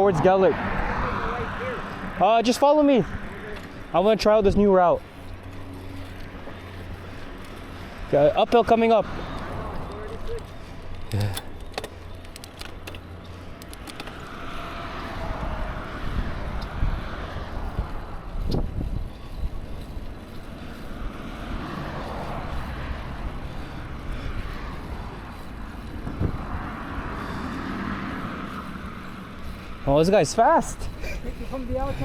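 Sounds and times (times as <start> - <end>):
road traffic passing: 0.0 - 32.0
wind rumbling on microphone: 13.1 - 29.8.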